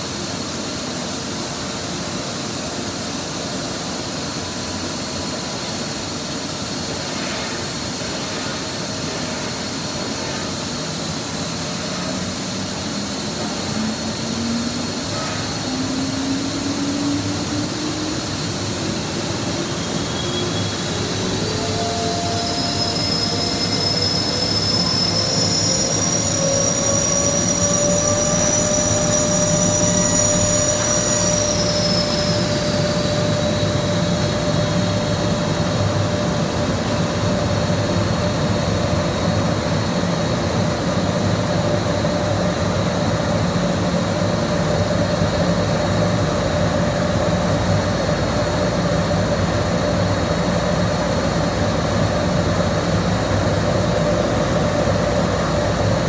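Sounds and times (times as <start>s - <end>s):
boiler burner and blower running: 0.0s - 56.0s
whining tones rising in pitch: 13.6s - 35.3s.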